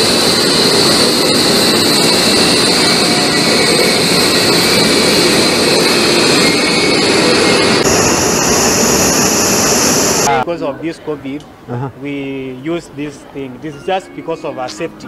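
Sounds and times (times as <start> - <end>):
train equipment rushing noise: 0.0 - 10.3
constant high whine: 0.0 - 10.5.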